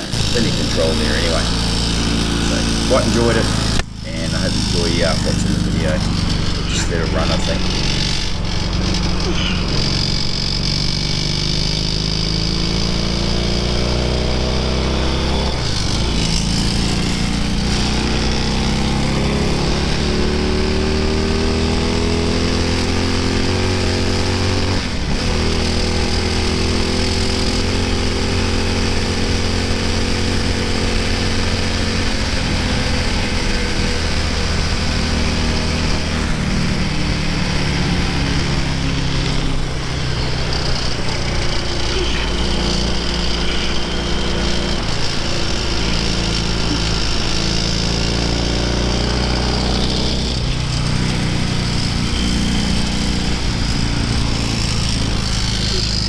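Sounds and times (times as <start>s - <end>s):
constant rush of noise: 0.0s - 11.0s
racing engine running hard: 0.0s - 56.0s.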